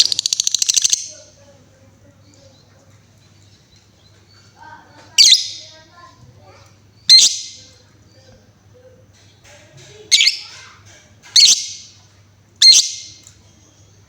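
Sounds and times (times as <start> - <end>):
lovebird shrill calls: 0.0 - 1.1, 5.2 - 5.7, 7.1 - 7.7, 10.1 - 10.6, 11.4 - 11.9, 12.6 - 13.2.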